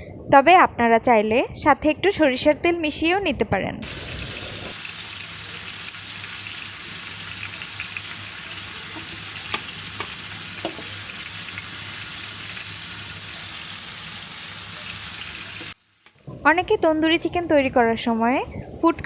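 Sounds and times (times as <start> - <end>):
chicken frying in hot oil: 3.8 - 16.7.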